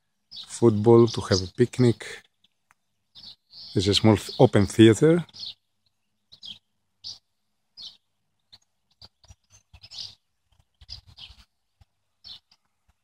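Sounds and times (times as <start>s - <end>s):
small songbirds chirping: 0.0s - 13.0s.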